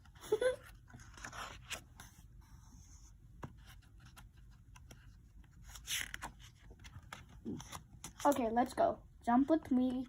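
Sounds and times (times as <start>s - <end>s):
paper page rustling: 3.6s - 8.5s.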